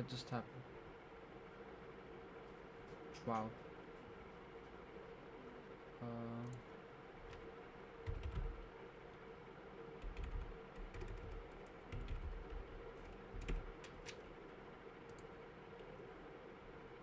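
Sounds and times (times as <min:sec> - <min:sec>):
keyboard typing: 0:08.0 - 0:08.7, 0:10.0 - 0:14.2.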